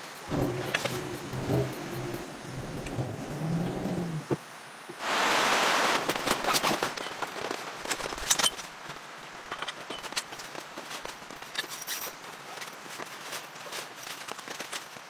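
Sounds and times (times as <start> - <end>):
rain hissing: 0.0 - 6.6
rain drops tapping: 0.2 - 4.4.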